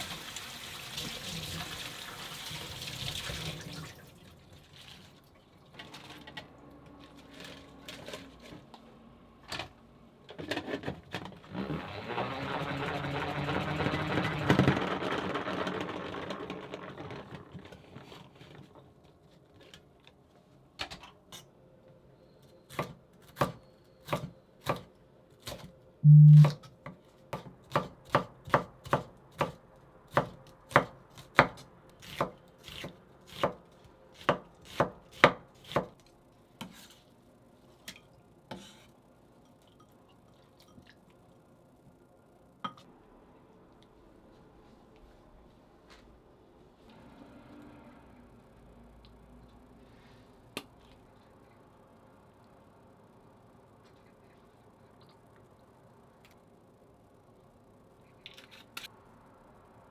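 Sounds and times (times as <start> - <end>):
running appliance noise: 0.0 - 57.6
knife chopping on cutting board: 27.4 - 33.6, 34.2 - 36.0.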